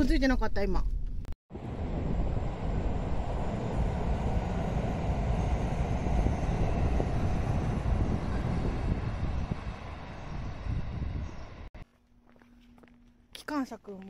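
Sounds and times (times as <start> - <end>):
train wheels rumbling on rails: 1.5 - 11.8.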